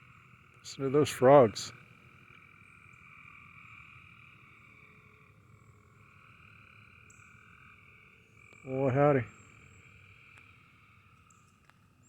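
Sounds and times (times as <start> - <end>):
chorus of frogs calling: 0.0 - 11.2.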